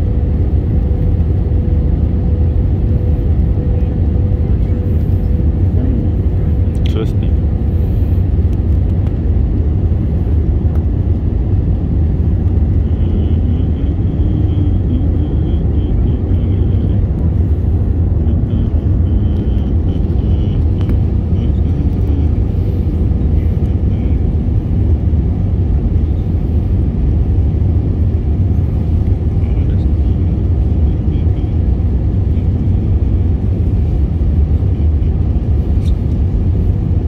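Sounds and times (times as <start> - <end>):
airliner engine rumble: 0.0 - 37.0
rushing air: 7.4 - 12.9, 20.0 - 29.4.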